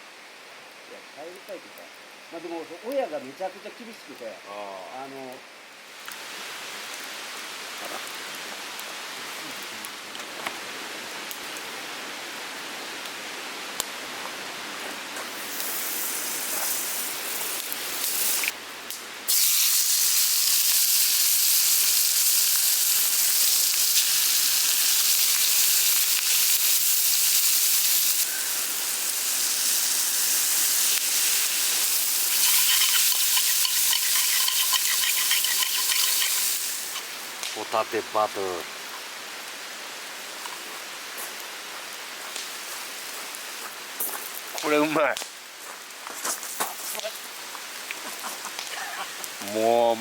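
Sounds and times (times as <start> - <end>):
food sizzling in a pan: 15.1 - 18.6, 19.2 - 50.0.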